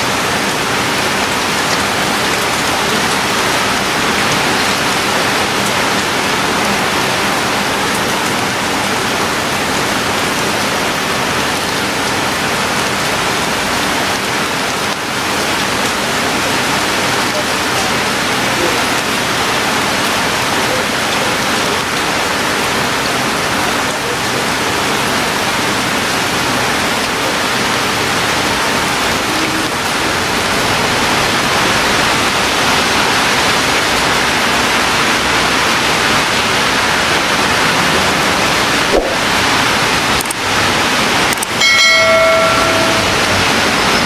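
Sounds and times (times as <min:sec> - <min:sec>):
rain falling steadily: 0:00.0 - 0:44.0.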